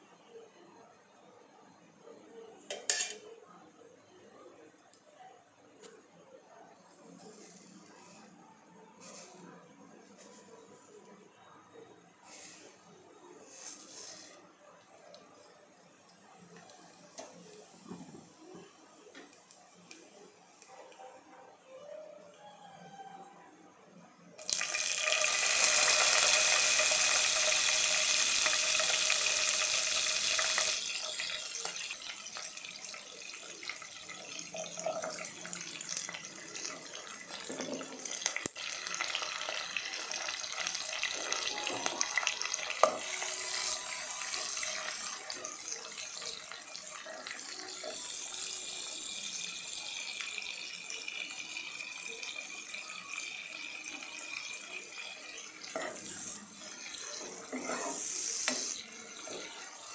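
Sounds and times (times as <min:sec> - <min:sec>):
chillies sizzling in hot oil: 0:12.2 - 0:14.4, 0:24.4 - 0:59.9.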